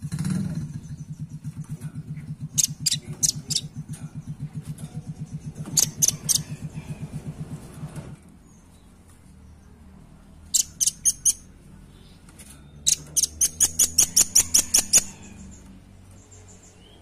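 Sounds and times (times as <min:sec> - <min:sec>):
nuthatch calling sharp chips: 0:02.6 - 0:03.7, 0:05.8 - 0:06.4, 0:10.6 - 0:11.4, 0:12.9 - 0:15.1.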